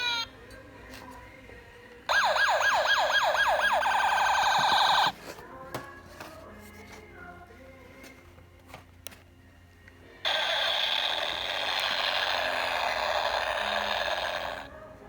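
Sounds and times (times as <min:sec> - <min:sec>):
harsh electronic grinding noise: 0:10.3 - 0:14.7.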